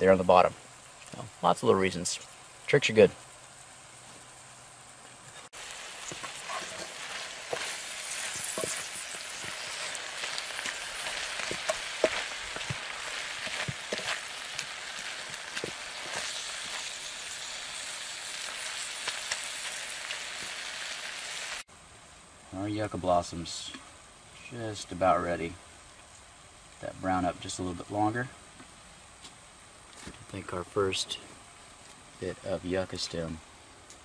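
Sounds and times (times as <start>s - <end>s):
wooden spatula scraping: 5.3s - 19.4s
food sizzling in butter: 5.3s - 21.7s.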